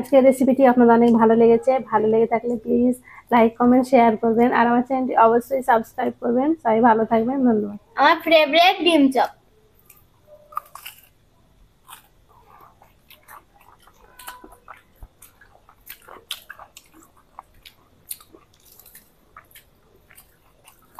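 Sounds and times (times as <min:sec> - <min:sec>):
people chewing crispy food: 0:09.7 - 0:20.9.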